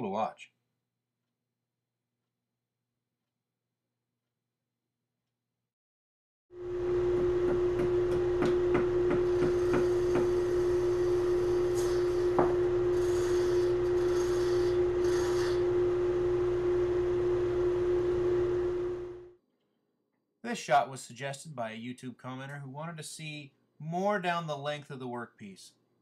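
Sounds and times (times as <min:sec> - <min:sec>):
wood lathe whining: 0:06.7 - 0:19.2
gouge scraping wood: 0:09.2 - 0:15.7.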